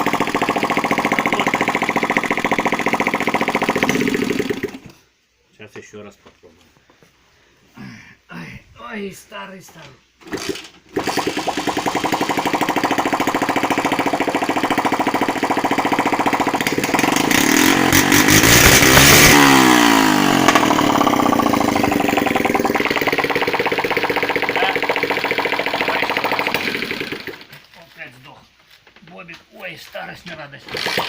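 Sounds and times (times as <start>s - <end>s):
moped engine running and revving: 0.0s - 4.8s, 11.0s - 27.4s.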